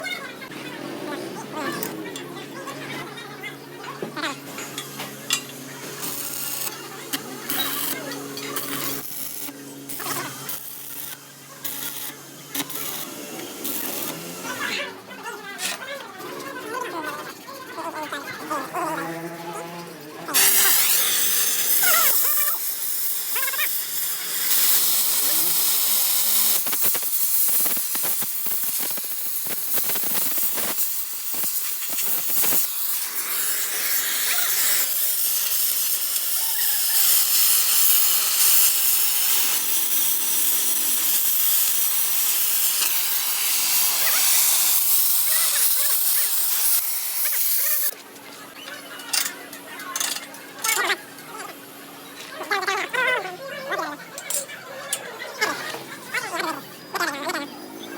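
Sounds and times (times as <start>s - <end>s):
welding arc hissing and crackling: 4.4s - 14.8s, 20.4s - 48.0s.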